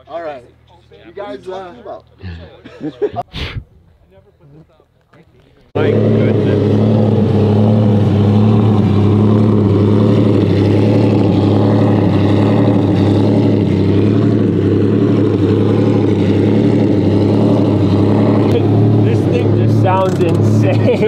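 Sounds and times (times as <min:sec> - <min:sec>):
car engine idling loudly: 0:05.8 - 0:21.0.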